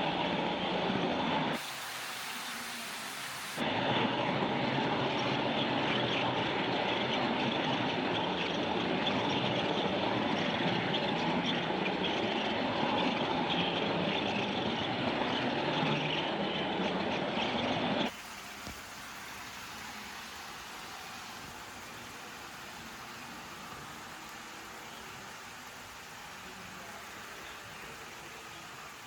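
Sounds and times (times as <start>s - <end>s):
train rumbling on track: 6.6s - 29.0s.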